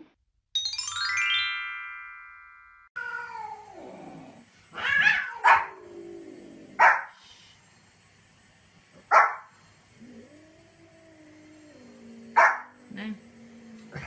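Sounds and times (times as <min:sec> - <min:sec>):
bright electronic chime: 0:00.6 - 0:02.9
cat yowling: 0:04.8 - 0:05.8.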